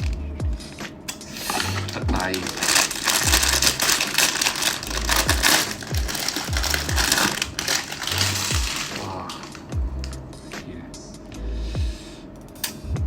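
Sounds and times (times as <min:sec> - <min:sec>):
background music with steady beat: 0:00.0 - 0:13.0
packaging crinkling and rustling: 0:01.4 - 0:09.7.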